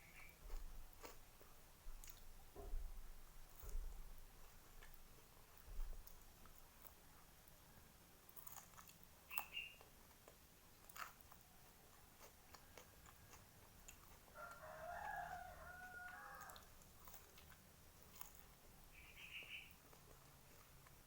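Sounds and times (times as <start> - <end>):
mouth chewing sounds: 0.0 - 21.0
rooster crowing: 14.3 - 16.7.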